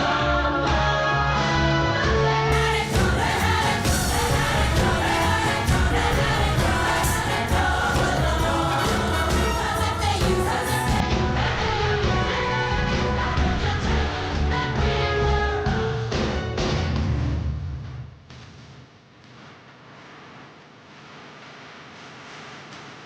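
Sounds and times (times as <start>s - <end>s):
choir singing over a steady beat: 0.0s - 16.6s.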